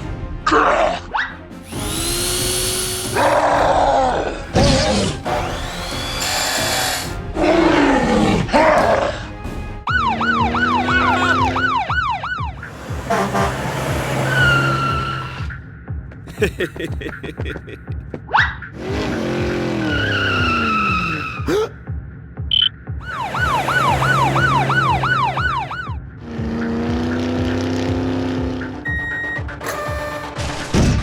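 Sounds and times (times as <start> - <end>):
background music: 0.0 - 31.0
siren wailing: 9.9 - 13.5, 23.0 - 26.0.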